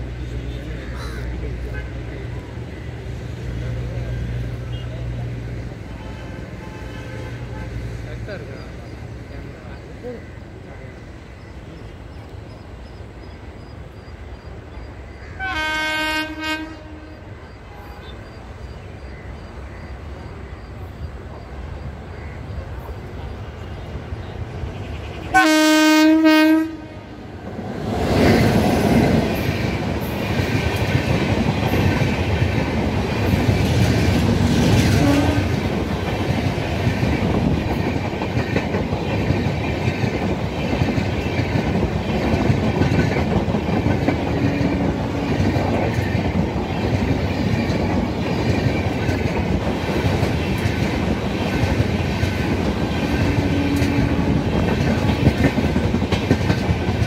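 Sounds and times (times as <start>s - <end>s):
train passing with loud rumble: 0.0s - 57.0s
locomotive horn blast: 5.9s - 7.8s, 15.4s - 18.2s, 24.7s - 27.2s, 34.9s - 35.7s, 44.4s - 45.5s, 53.3s - 54.6s
wheels clacking over rail joints: 27.4s - 57.0s.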